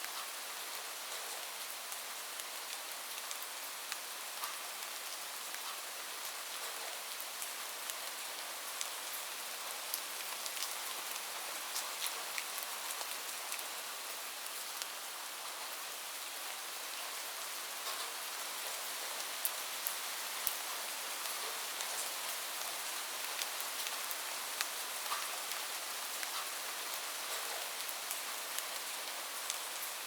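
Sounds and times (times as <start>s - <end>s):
raindrops ticking on surface: 0.0s - 15.8s, 16.5s - 30.0s
rain falling: 0.0s - 30.0s.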